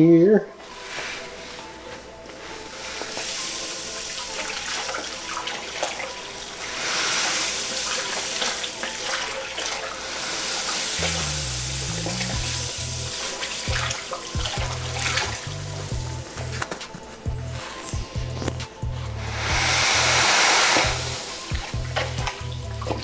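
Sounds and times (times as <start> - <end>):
grain pouring into water: 2.8 - 16.0, 19.2 - 23.0
background music with bass line: 11.0 - 23.0.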